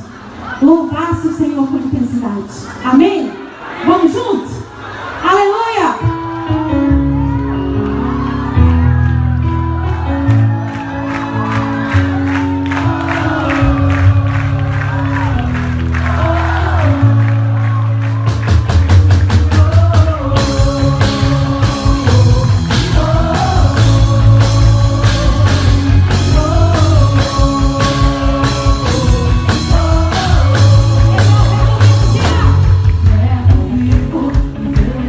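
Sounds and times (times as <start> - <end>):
guitar: 6.0 - 35.0
bass guitar: 6.1 - 35.0
person singing lead vocal: 11.4 - 18.0, 19.3 - 35.0
drum kit beat: 18.1 - 35.0.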